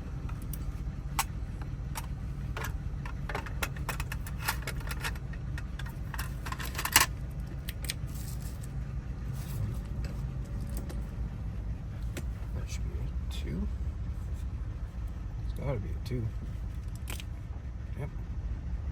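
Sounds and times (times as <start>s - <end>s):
steady low hum: 0.0s - 18.9s
rattle of clicks: 1.2s - 8.7s.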